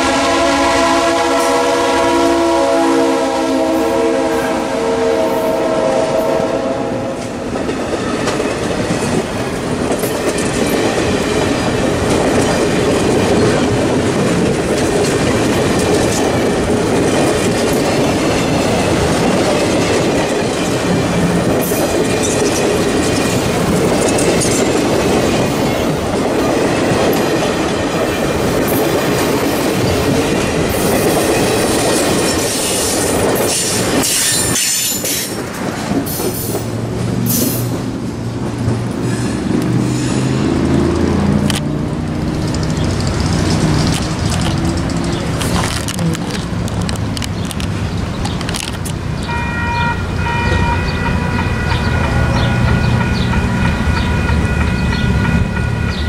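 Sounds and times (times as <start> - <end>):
train wheels rumbling on rails: 0.0 - 56.0
wheels clacking over rail joints: 7.2 - 49.4.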